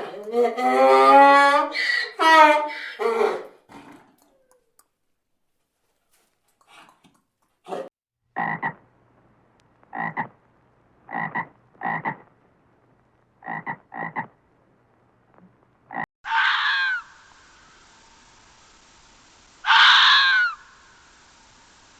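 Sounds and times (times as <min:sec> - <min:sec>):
animal call with sliding pitch: 0:00.0 - 0:03.5, 0:16.3 - 0:17.8, 0:19.6 - 0:21.0
frog croaking: 0:08.4 - 0:08.8, 0:09.9 - 0:10.4, 0:11.1 - 0:12.3, 0:13.4 - 0:14.4, 0:15.9 - 0:17.0.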